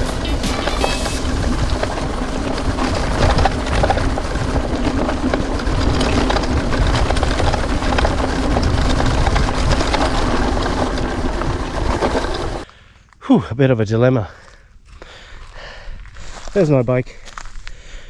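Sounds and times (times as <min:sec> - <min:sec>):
heavy low rumble: 0:00.0 - 0:12.6
bike clattering and rattling: 0:00.0 - 0:12.7
bike tyres on stones and ruts: 0:00.0 - 0:13.3, 0:14.2 - 0:18.0.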